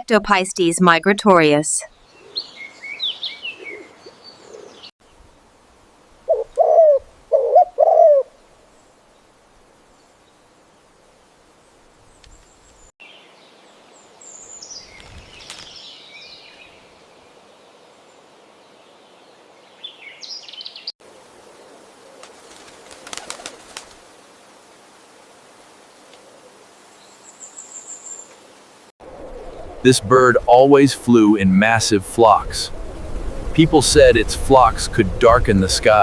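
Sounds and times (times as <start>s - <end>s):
songbird chirps and twitters: 1.6s - 5.2s, 12.0s - 21.0s, 26.9s - 36.0s
low pigeon cooing: 6.3s - 8.3s.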